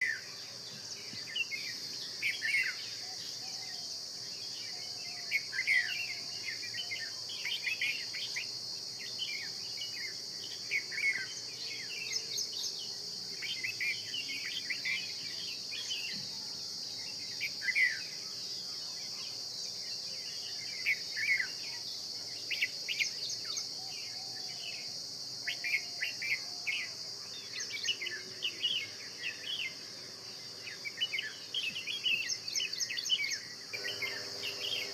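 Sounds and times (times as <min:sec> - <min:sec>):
high-pitched insect drone: 0:30.7 - 0:34.9
birds chirping and whistling: 0:30.8 - 0:34.9.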